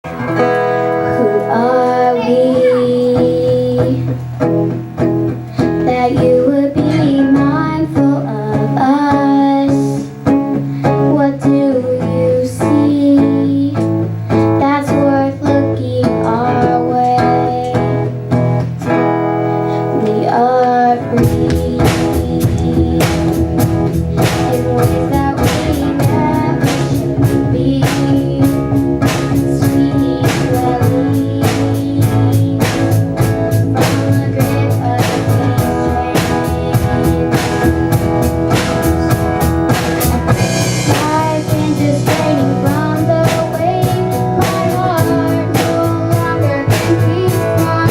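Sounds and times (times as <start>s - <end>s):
drum kit beat: 0.0s - 47.9s
guitar: 0.0s - 47.9s
person singing: 1.0s - 4.2s, 5.6s - 18.2s, 19.6s - 47.9s.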